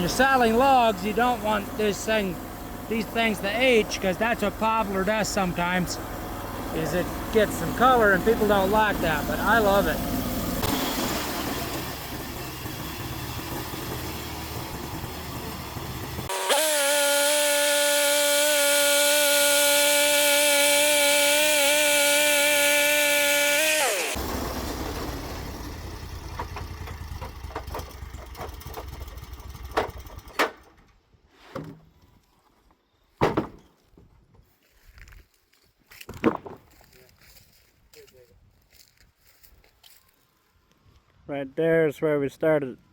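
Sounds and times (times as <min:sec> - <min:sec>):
band saw blade cutting log: 0:00.0 - 0:25.6
sawmill engine running: 0:00.0 - 0:30.4.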